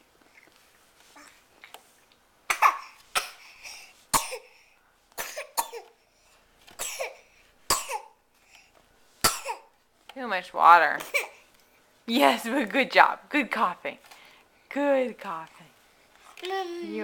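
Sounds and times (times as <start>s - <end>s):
baby coughing: 2.5s - 4.6s, 5.2s - 6.0s, 6.8s - 8.2s, 9.2s - 9.7s, 11.0s - 11.4s.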